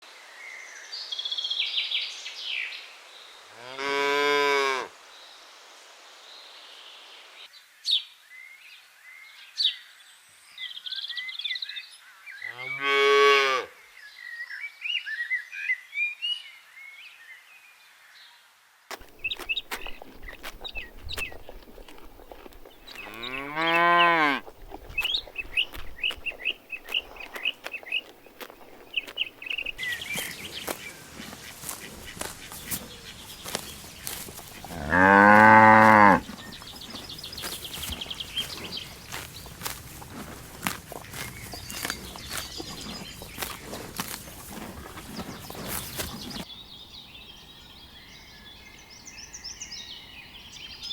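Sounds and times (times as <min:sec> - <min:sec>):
birds chirping: 0:19.0 - 0:50.9
cows mooing: 0:22.9 - 0:24.5, 0:29.8 - 0:46.4.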